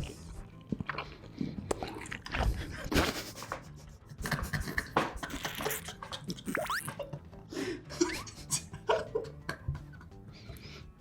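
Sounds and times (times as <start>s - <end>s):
crunching and wet chewing: 0.0s - 3.0s.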